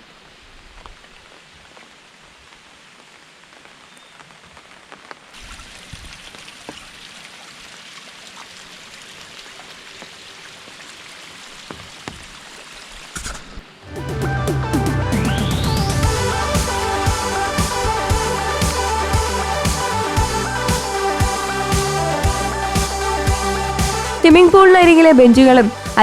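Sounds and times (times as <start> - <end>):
raindrops clicking close by: 0.0 - 13.7
steady rain falling: 0.0 - 14.0, 14.6 - 26.0.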